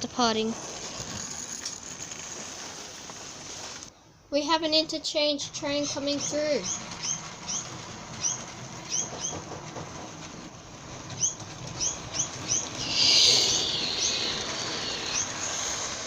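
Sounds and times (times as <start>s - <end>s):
small bird chirping: 5.6s - 9.5s, 11.2s - 15.6s
loud hiss: 12.8s - 16.0s.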